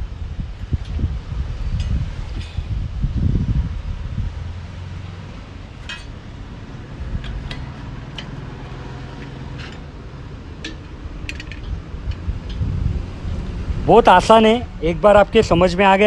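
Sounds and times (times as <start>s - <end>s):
low wind rumble on microphone: 0.0s - 16.0s
light metallic clinks: 5.8s - 6.5s.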